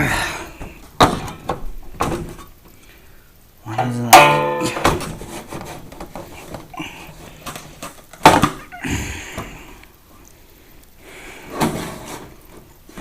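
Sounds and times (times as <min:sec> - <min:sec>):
hard plastic parts knocking: 0:00.6 - 0:02.5, 0:04.1 - 0:06.7, 0:07.4 - 0:08.6.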